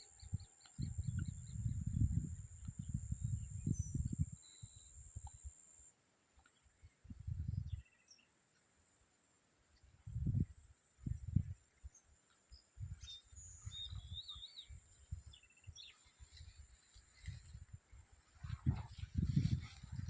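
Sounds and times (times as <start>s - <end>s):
faint bird chirps: 0.0s - 8.6s, 9.7s - 17.7s
high insect buzz: 0.0s - 20.0s
wind buffeting microphone: 0.2s - 4.4s, 7.1s - 7.8s, 10.1s - 11.6s, 17.3s - 20.0s.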